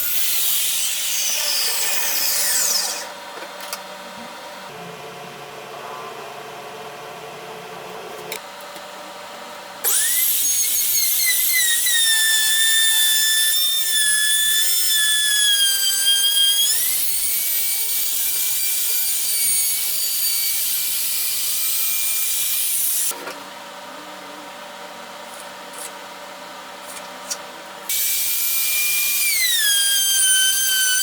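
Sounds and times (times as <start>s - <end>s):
power tool motor whine: 0.0s - 3.2s, 9.8s - 23.2s, 27.9s - 31.0s.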